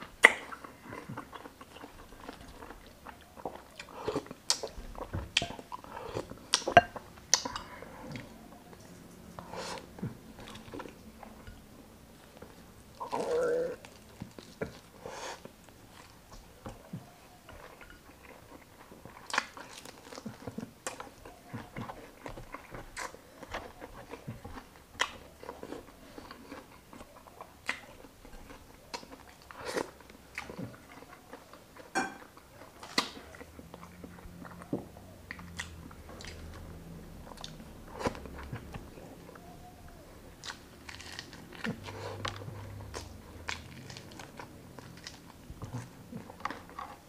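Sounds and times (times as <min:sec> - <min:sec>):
chewing and biting food: 0:00.0 - 0:47.0.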